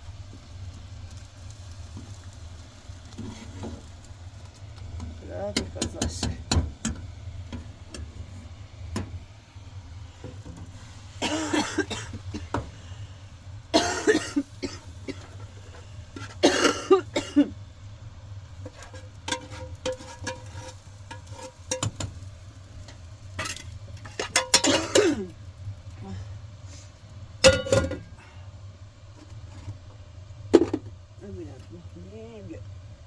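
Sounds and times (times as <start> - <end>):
woman coughing: 11.2 - 12.5, 13.8 - 15.3, 16.4 - 17.5, 24.6 - 25.4
kitchenware clinking: 23.4 - 25.2, 27.4 - 28.1.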